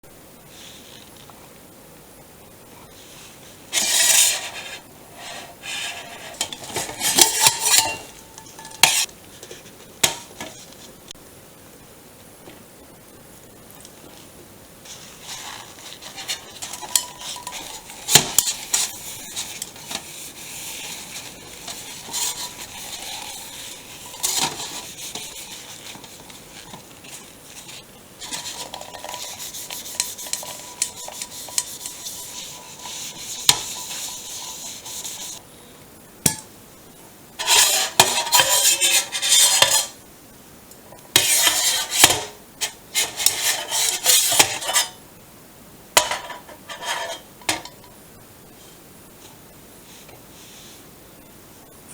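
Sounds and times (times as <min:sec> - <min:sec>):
rubbing soot off metal cooker: 0:03.7 - 0:10.8, 0:14.8 - 0:35.4, 0:37.4 - 0:40.0, 0:41.2 - 0:45.0, 0:46.0 - 0:47.6
hard scrubbing: 0:03.8 - 0:09.1, 0:14.9 - 0:35.4, 0:37.4 - 0:40.0
pot scraping and clinking: 0:03.8 - 0:09.1, 0:14.9 - 0:35.4, 0:37.4 - 0:40.0, 0:41.2 - 0:45.0, 0:46.0 - 0:48.0.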